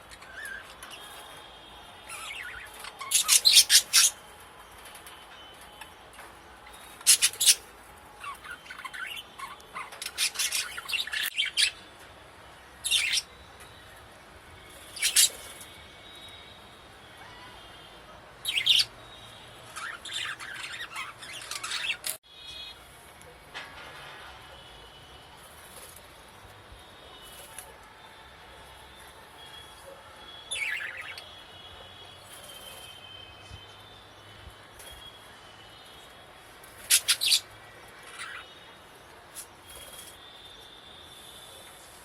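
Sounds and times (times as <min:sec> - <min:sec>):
budgerigars chirping and squawking: 0:02.1 - 0:04.2, 0:07.0 - 0:07.6, 0:08.2 - 0:11.8, 0:14.9 - 0:15.6, 0:19.7 - 0:22.2, 0:30.5 - 0:31.2, 0:36.8 - 0:37.4, 0:38.0 - 0:38.5.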